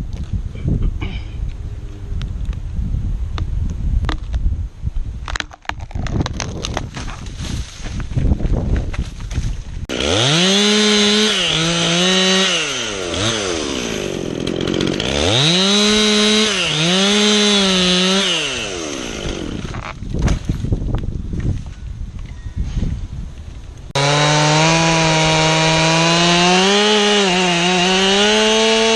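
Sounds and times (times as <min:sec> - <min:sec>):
chainsaw cutting wood: 0:09.9 - 0:20.6, 0:23.9 - 0:28.9.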